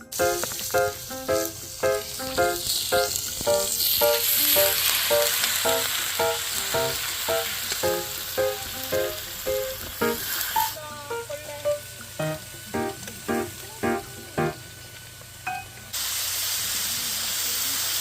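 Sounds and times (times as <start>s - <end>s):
plucked-string background music: 0.0s - 4.2s, 5.2s - 10.2s, 11.1s - 14.6s
food sizzling: 0.0s - 18.0s.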